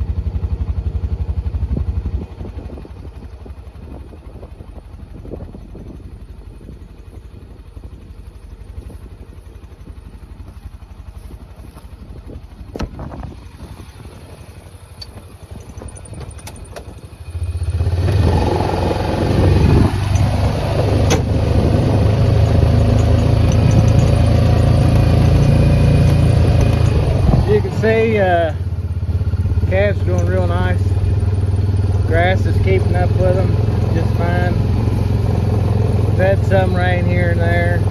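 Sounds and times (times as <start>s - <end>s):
tractor engine rumbling: 0.0s - 37.9s
clicks and knocks: 21.0s - 27.5s.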